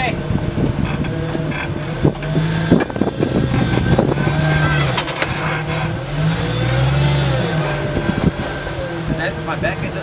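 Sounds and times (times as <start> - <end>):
engine running under load: 0.0 - 10.0
sharp knocks: 0.8 - 8.4.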